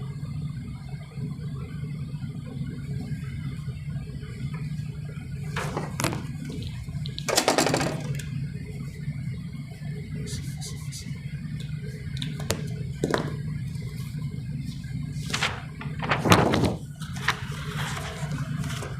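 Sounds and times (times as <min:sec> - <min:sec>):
steady low hum: 0:00.0 - 0:18.9
rustling noise: 0:14.8 - 0:18.9.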